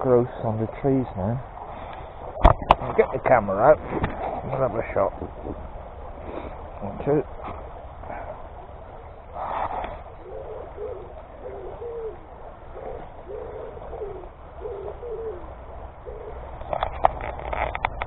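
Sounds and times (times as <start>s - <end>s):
pigeon cooing: 3.8s - 6.6s, 7.4s - 17.7s.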